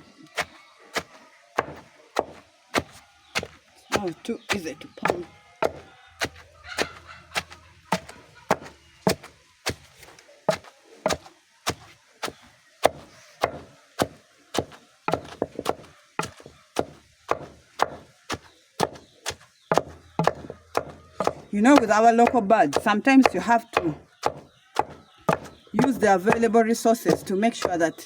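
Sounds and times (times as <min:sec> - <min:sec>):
pestle pounding in a mortar: 0:00.4 - 0:09.9, 0:12.2 - 0:27.8.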